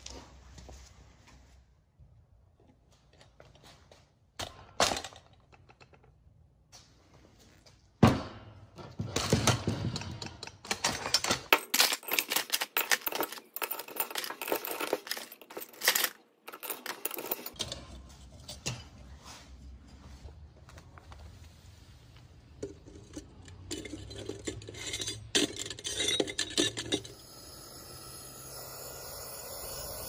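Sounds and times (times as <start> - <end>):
scrap aluminum parts clattering: 8.8 - 19.1, 22.5 - 27.2.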